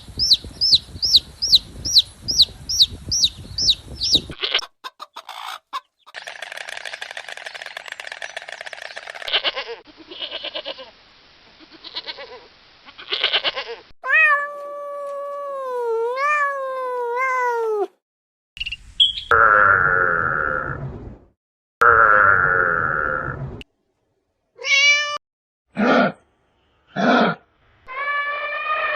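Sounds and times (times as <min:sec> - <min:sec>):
chicken clucking: 0:02.3 - 0:07.1
cat meowing: 0:13.1 - 0:18.0, 0:24.6 - 0:25.2, 0:27.9 - 0:28.9.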